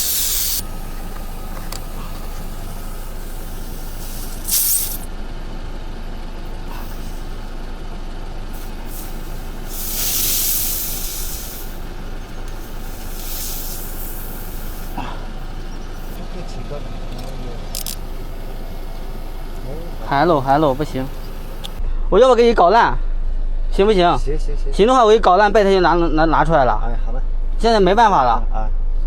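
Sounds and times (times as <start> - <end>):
air hissing from tyre: 0.0 - 16.8, 17.6 - 21.8
steady low hum: 0.0 - 29.0.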